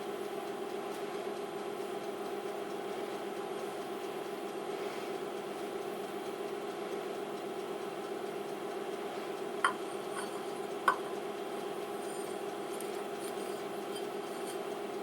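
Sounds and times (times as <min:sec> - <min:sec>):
milling machine humming: 0:09.5 - 0:15.0
light metallic clinks: 0:09.6 - 0:11.2, 0:11.9 - 0:14.8.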